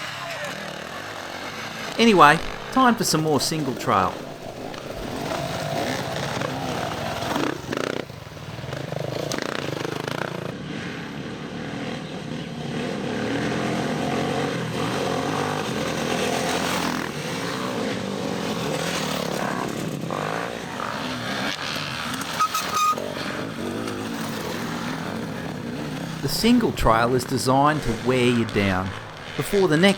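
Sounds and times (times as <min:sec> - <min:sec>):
dirt bike engine revving: 0:00.0 - 0:10.5, 0:12.6 - 0:29.9.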